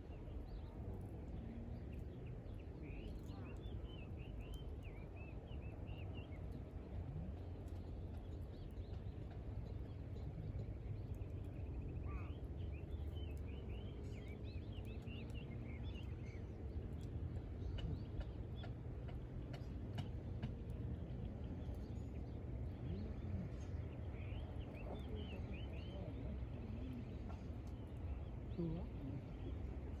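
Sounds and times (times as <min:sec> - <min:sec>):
small birds chirping: 0:00.0 - 0:30.0
campfire crackling and popping: 0:06.3 - 0:22.6.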